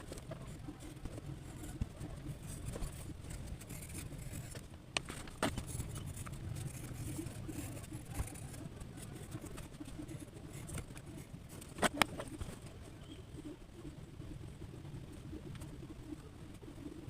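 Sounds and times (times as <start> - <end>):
low rumble of handling noise: 0.0 - 17.0
pencil scratching on paper: 0.2 - 4.6, 5.5 - 12.4.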